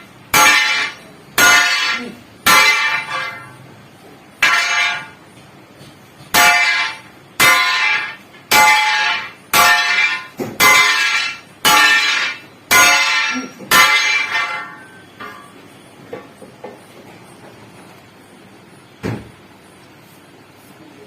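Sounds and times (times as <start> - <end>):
hammer clanging on steel spring: 6.2 - 16.5.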